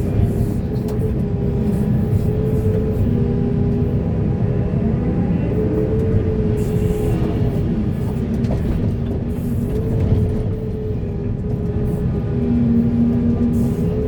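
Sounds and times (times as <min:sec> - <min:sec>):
heavy diesel machinery rumbling: 0:00.0 - 0:14.0.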